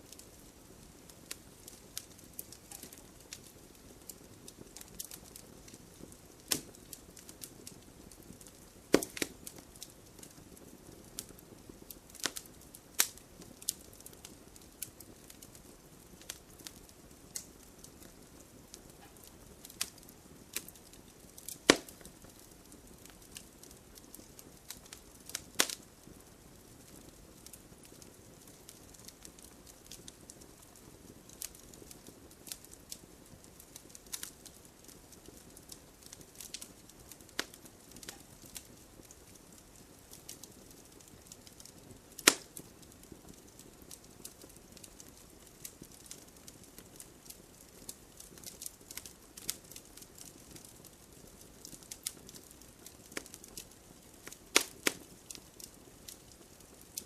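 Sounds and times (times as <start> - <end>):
campfire crackling: 0.0 - 57.0.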